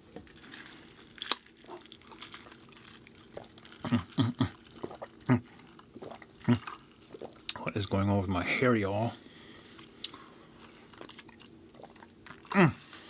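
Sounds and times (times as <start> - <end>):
person drinking through a straw: 0.2 - 7.6, 10.9 - 12.9.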